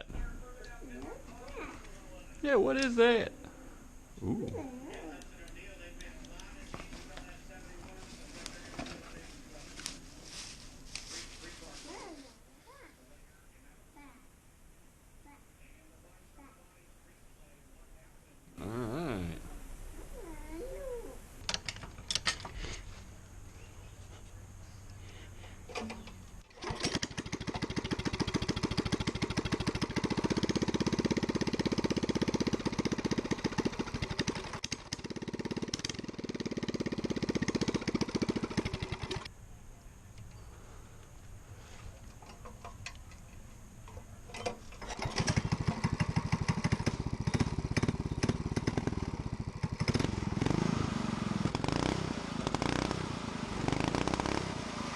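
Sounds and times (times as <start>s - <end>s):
small gasoline engine running: 26.5s - 39.3s, 44.8s - 54.9s.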